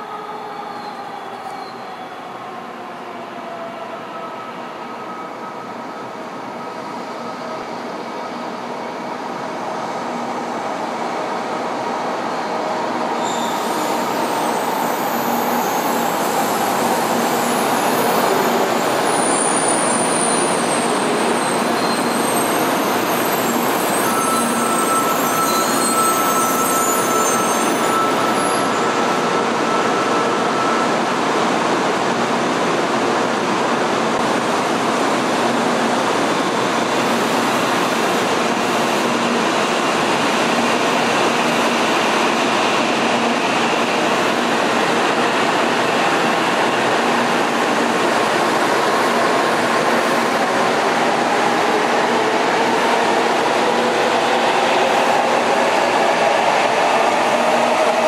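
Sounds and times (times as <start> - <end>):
faint high squeals: 0.0 - 2.5, 12.4 - 31.0.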